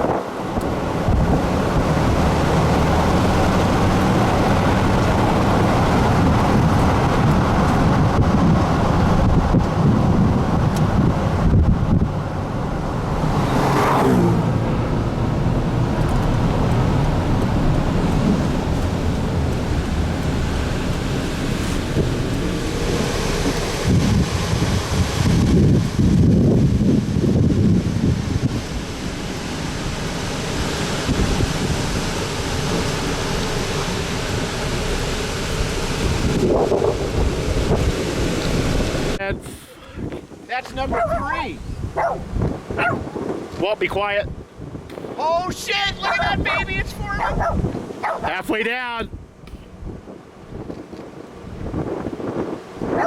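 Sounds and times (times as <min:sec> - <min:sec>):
strong wind on microphone: 0:00.0 - 0:53.0
vehicle passing by: 0:00.3 - 0:39.2, 0:45.7 - 0:48.5.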